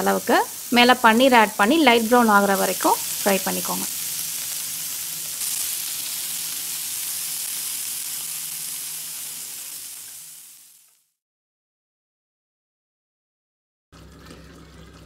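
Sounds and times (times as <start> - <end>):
cheese sizzling in oil: 0.0 - 11.2.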